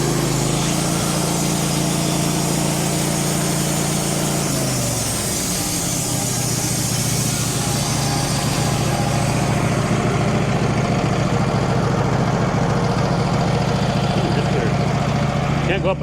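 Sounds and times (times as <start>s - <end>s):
sawmill gasoline engine running: 0.0s - 16.0s.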